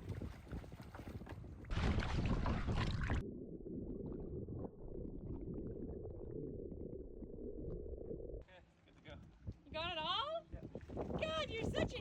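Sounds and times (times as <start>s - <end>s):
splashing and wind noise: 0.0s - 3.3s, 8.9s - 12.0s
muffled underwater rumble and gurgle: 1.6s - 8.4s.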